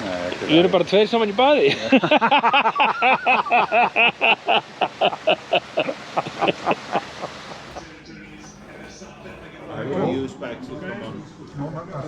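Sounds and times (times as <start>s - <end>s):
man laughing hard: 1.7s - 7.3s.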